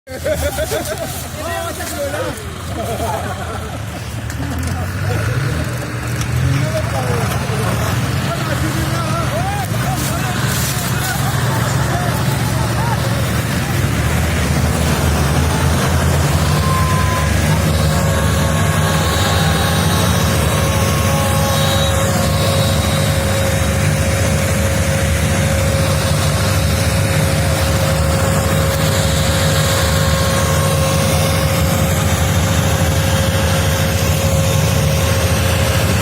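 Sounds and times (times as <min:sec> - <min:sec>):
tractor diesel engine running: 0:00.0 - 0:36.0
thin steady whine: 0:08.4 - 0:36.0.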